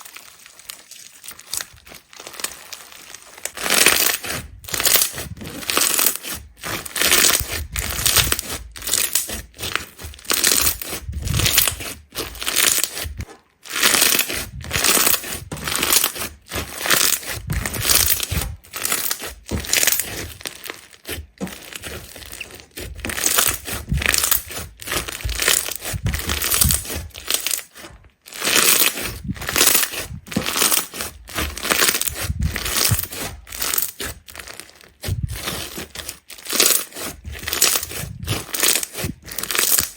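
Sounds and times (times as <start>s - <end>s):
crisp crackling crunching strokes: 0.0s - 39.9s.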